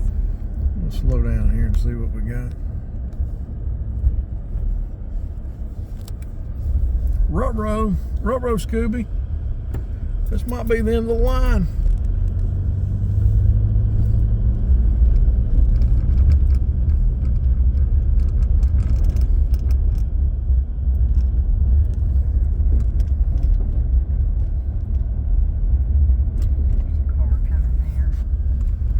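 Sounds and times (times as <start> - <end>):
car cabin rumble: 0.0 - 28.9
light ticks and rattles: 0.0 - 28.9.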